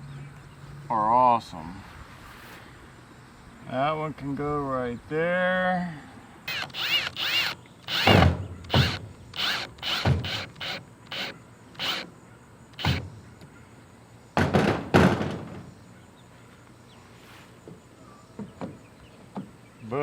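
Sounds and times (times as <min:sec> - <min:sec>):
knocks and clunks on wood: 0:12.8 - 0:13.5, 0:14.4 - 0:15.8, 0:17.6 - 0:19.6.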